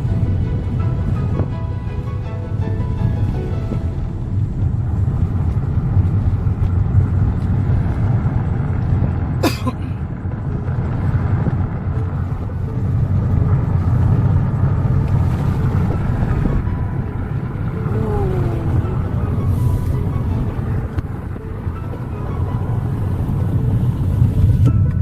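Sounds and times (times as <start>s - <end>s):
car driving rumble: 0.0s - 25.0s.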